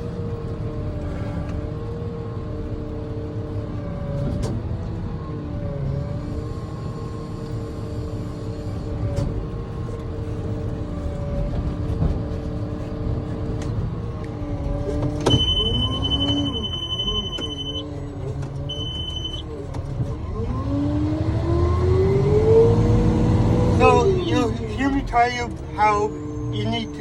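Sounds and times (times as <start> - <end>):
steady high tone: 15.3 - 17.8, 18.7 - 19.4.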